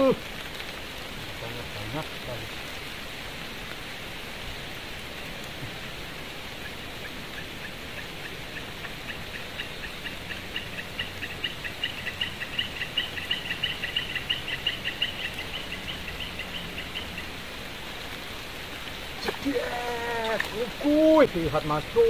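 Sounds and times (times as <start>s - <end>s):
rain hissing: 0.0s - 22.0s
rapid chirping calls: 6.5s - 22.0s.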